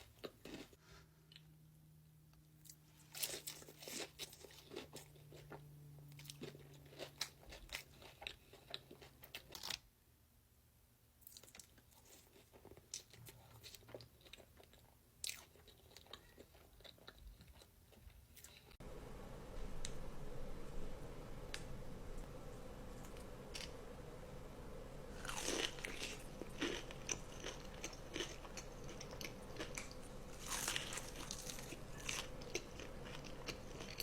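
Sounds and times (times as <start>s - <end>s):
crunchy food being chewed: 0.0s - 1.5s, 2.6s - 9.9s, 11.2s - 18.8s, 25.1s - 34.0s.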